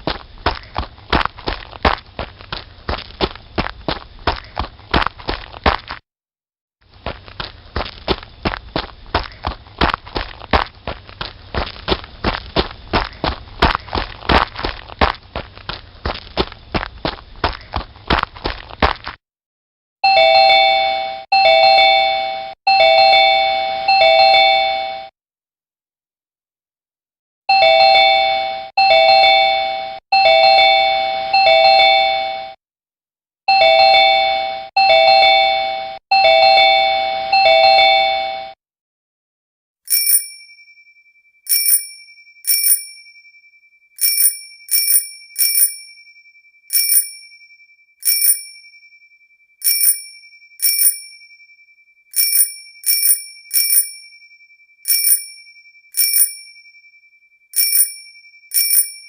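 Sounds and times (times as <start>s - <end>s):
electronic bell ringing: 20.0s - 25.1s, 27.5s - 32.6s, 33.5s - 38.6s, 39.9s - 59.0s
bicycle bell dings: 39.9s - 59.0s.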